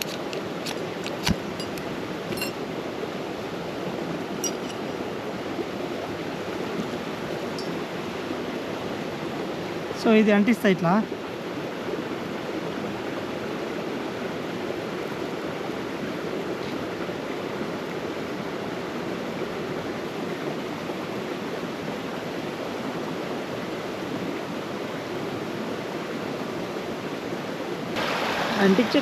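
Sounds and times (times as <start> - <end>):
running water rushing: 0.0 - 29.0.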